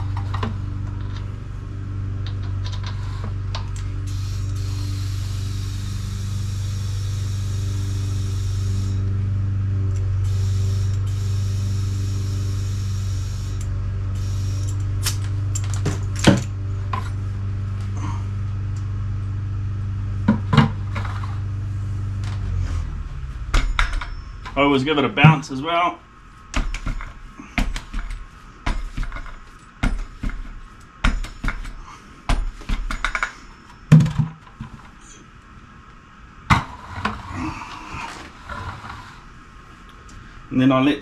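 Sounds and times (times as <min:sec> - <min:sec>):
air compressor humming: 0:00.0 - 0:35.2
air hissing: 0:04.0 - 0:09.1, 0:10.2 - 0:15.2.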